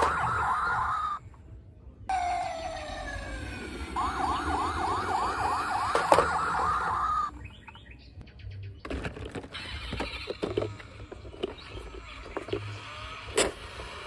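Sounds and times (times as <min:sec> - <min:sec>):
toy electronic siren wailing: 0:00.0 - 0:01.2, 0:02.1 - 0:07.3.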